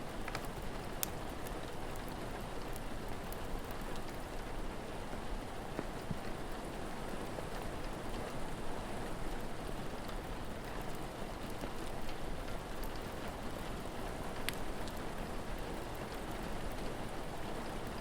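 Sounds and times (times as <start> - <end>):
steady rain: 0.0 - 18.0
crackling fire pops: 0.2 - 4.2, 14.4 - 15.0.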